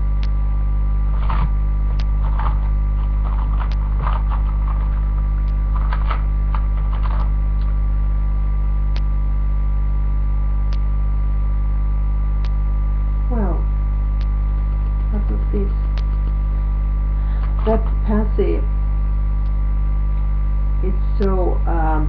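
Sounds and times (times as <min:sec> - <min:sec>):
electrical mains hum: 0:00.0 - 0:22.0
sharp clicks: 0:01.1 - 0:07.8, 0:08.9 - 0:09.1, 0:10.7 - 0:10.9, 0:12.4 - 0:12.6, 0:14.2 - 0:16.4.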